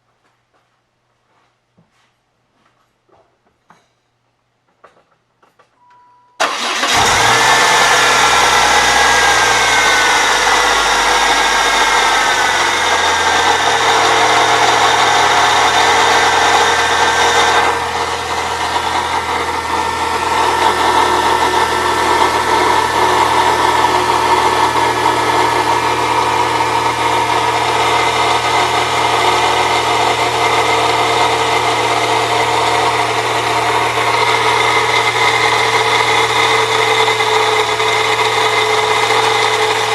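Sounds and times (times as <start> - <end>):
car engine starting and idling: 6.4 - 39.9
grinding from belt drive: 6.4 - 39.9.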